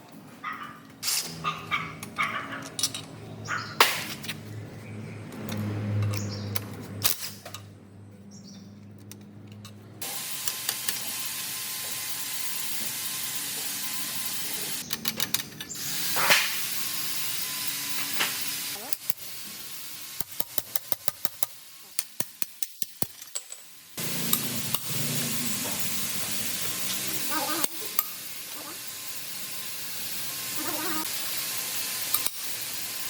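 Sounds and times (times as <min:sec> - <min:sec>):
hissing spray: 0:10.0 - 0:14.8, 0:15.7 - 0:20.5, 0:24.0 - 0:33.0.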